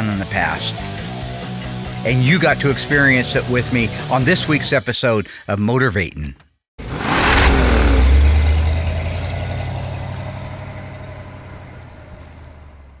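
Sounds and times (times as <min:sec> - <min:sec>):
car engine idling: 0:07.4 - 0:13.0.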